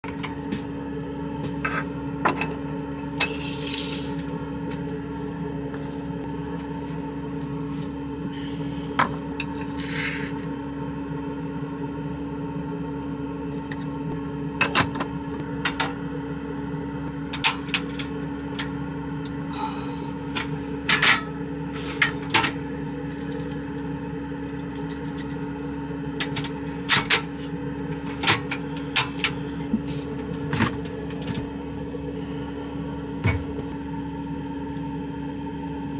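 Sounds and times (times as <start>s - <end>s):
steady mechanical hum: 0.0s - 35.9s
objects scraping: 3.2s - 4.3s, 7.8s - 10.4s, 20.4s - 22.6s.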